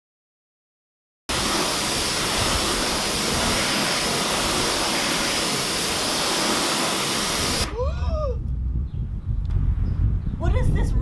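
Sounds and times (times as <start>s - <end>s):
hose spraying water on car: 1.3s - 7.7s.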